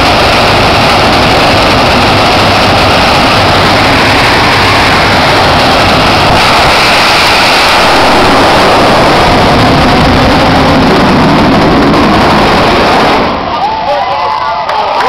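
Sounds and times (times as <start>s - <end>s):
turbine engine roaring: 0.0s - 15.0s.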